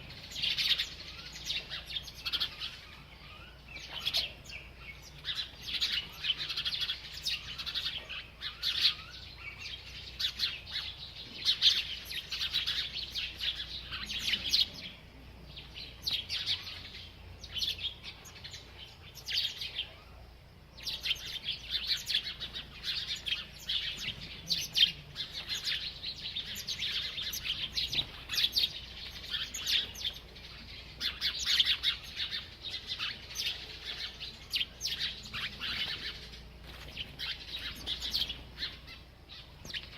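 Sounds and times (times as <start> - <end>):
small bird chirping: 0.0 - 39.9.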